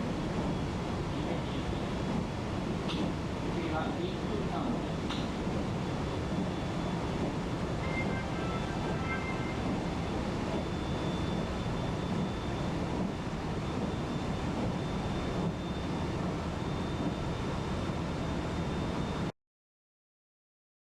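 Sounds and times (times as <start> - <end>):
train wheels rumbling on rails: 0.1 - 18.5
faint high tone: 7.8 - 11.2.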